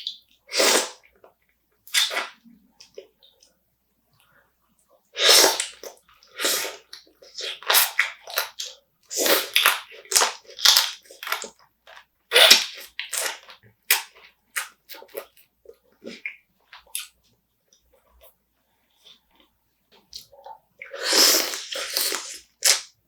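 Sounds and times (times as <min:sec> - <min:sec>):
crunching and chewing crab: 0:05.6 - 0:17.2.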